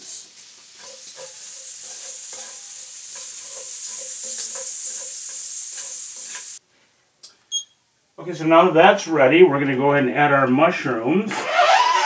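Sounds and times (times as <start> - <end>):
bacon sizzling in a skillet: 0.0 - 6.6.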